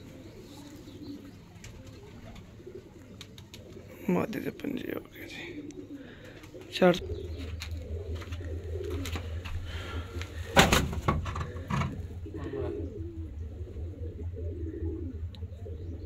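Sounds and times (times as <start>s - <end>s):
pigeons cooing: 0.0s - 16.0s
steady low hum: 0.0s - 16.0s.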